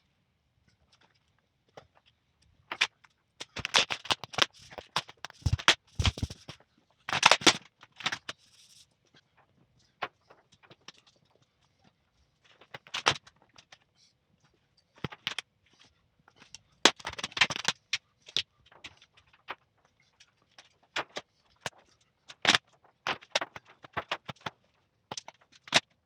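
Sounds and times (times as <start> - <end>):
plastic sheet crinkling: 4.2 - 6.4.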